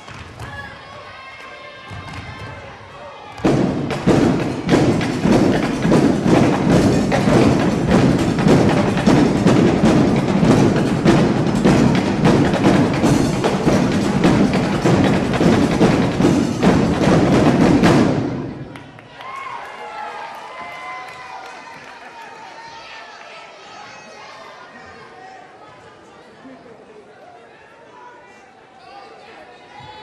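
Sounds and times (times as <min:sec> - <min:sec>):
drum line playing fast cadence: 0:03.4 - 0:19.4.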